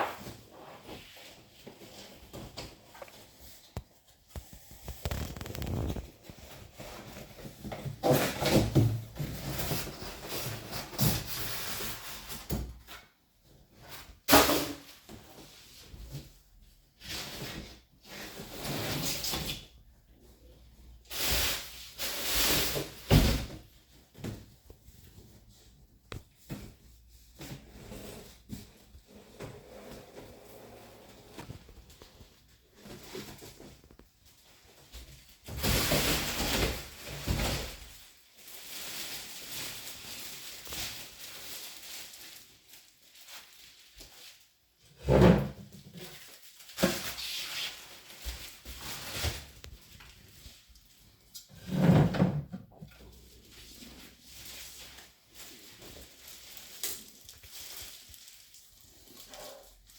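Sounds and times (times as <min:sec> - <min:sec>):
scraping and rustling: 0:00.0 - 0:12.4.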